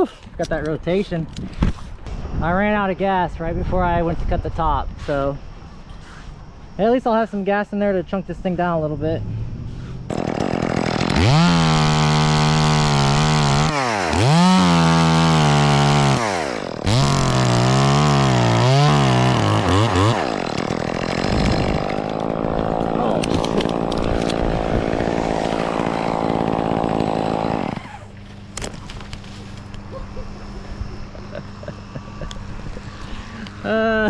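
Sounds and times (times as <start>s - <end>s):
chainsaw cutting wood: 10.1s - 29.8s.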